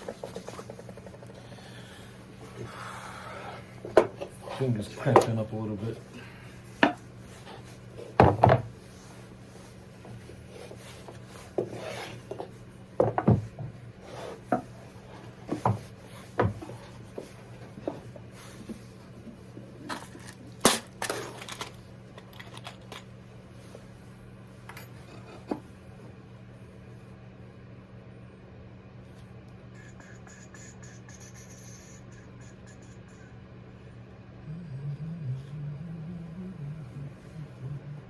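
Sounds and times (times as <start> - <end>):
low hum: 32.0 - 38.0.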